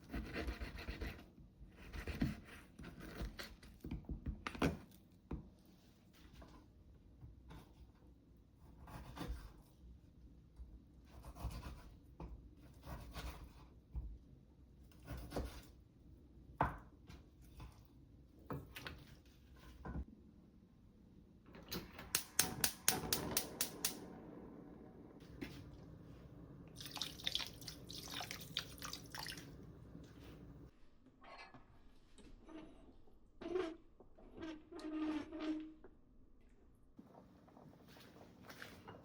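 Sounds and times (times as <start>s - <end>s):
kitchen scraping and rubbing strokes: 29.8s - 30.7s.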